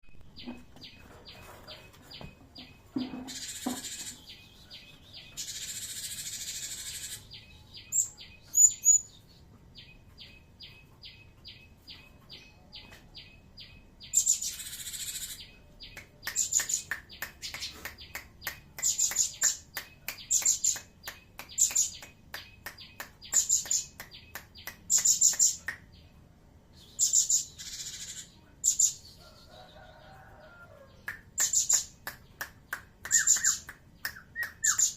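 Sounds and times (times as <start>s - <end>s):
bird sharp high chirps: 12.8s - 25.9s, 31.0s - 34.9s.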